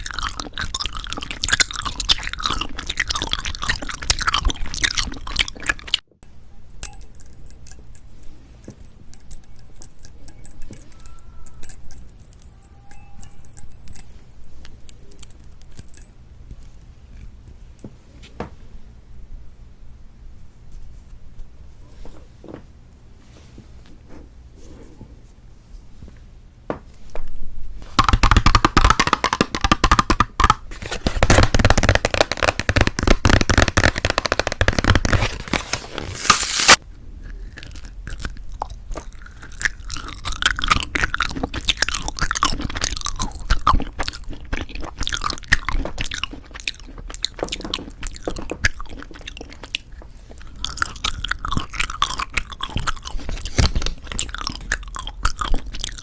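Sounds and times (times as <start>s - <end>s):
candy crunching: 0.0s - 6.0s, 27.9s - 56.0s
wet chewing: 0.0s - 6.0s, 28.0s - 56.0s.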